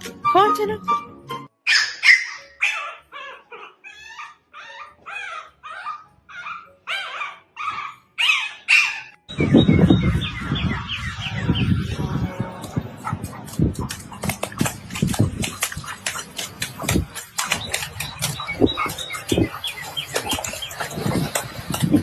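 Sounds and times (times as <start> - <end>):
dog whining and yelping: 1.7 - 9.2
low rumbling noise: 9.3 - 16.0.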